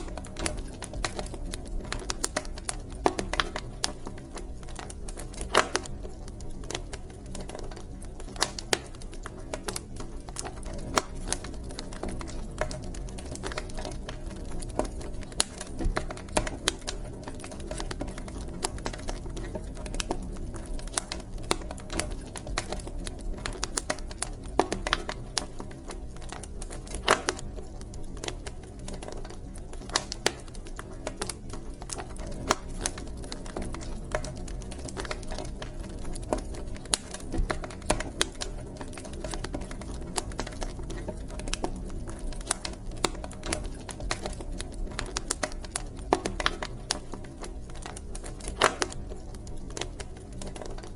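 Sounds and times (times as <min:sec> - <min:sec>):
low rumble of flames: 0:00.0 - 0:50.9
wood fire crackling and popping: 0:00.0 - 0:50.9.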